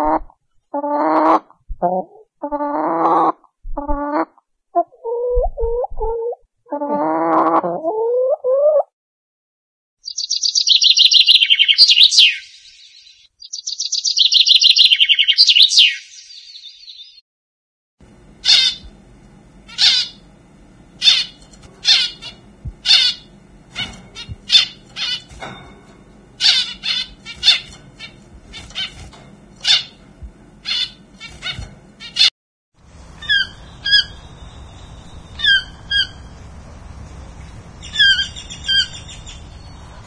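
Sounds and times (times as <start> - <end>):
harsh raspy bird squawks: 18.4 - 18.8, 19.7 - 20.2, 21.0 - 25.2, 26.4 - 28.9, 29.6 - 30.0, 30.6 - 32.3, 33.2 - 34.1
thin squeaky bird call: 21.0 - 25.4, 26.4 - 30.0.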